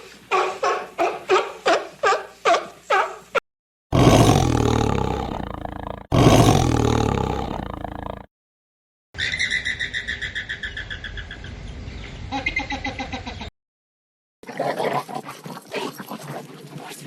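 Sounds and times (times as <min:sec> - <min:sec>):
long low animal calls: 0:04.0 - 0:08.3.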